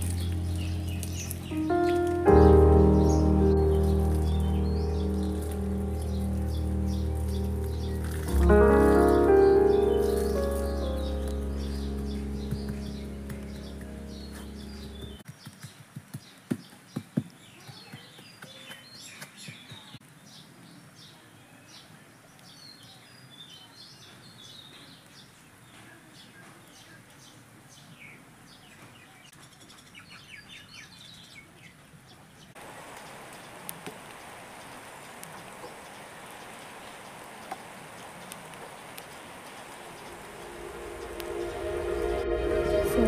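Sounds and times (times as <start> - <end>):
small birds chirping: 0.0 - 41.6
steady rushing noise: 39.5 - 43.0.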